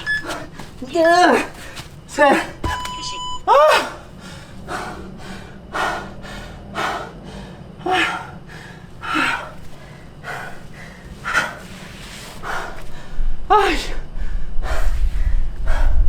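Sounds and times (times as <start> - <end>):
man breathing hard: 3.7 - 13.4, 14.0 - 16.0.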